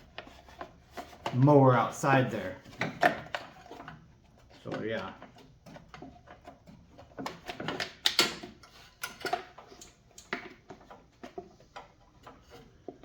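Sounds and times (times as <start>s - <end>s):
tool clicks and metal clatter: 4.6s - 13.0s.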